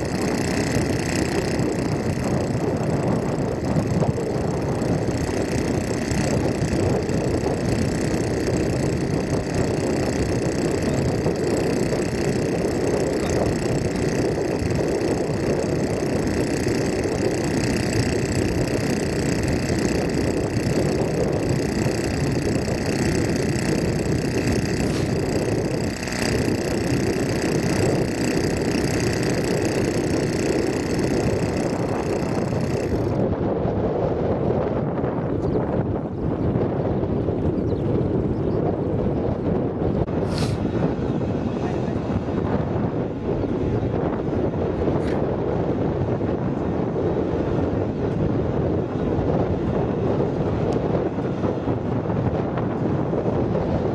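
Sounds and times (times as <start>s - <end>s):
tractor engine droning: 0.0s - 33.4s.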